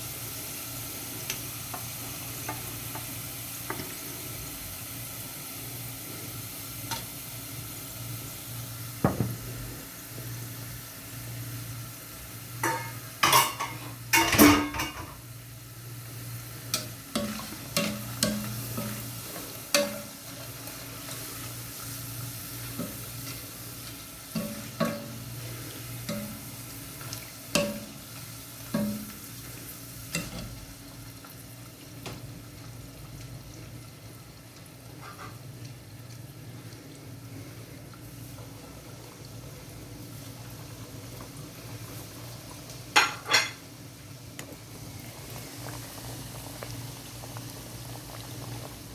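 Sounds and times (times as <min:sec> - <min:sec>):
food sizzling in oil: 0:00.0 - 0:48.9
utensil clacking against pan: 0:12.6 - 0:15.1, 0:19.7 - 0:20.1.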